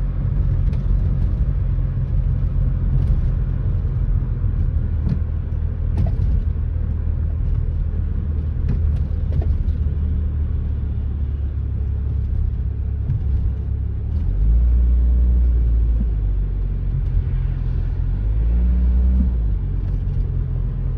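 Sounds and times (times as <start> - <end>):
knocks and rattles from axle: 0.0 - 10.2, 11.9 - 14.4
car engine rumble: 0.0 - 20.9.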